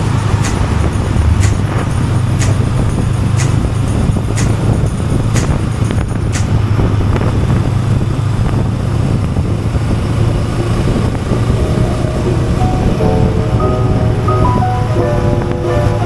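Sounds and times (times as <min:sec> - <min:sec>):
background music: 0:00.0 - 0:06.7, 0:10.2 - 0:16.0
motorcycle engine drone: 0:00.0 - 0:16.0
rushing wind: 0:00.0 - 0:16.0.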